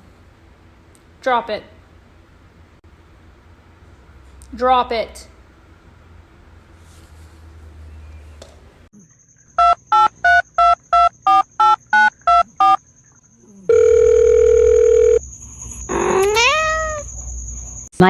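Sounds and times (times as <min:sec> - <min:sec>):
steady telephone tone: 0:09.6 - 0:12.8, 0:13.7 - 0:15.2
telephone keypad beeps: 0:09.6 - 0:12.8.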